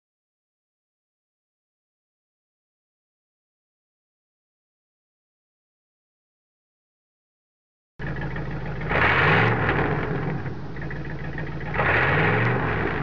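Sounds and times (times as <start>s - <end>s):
car engine revving: 8.0s - 13.0s.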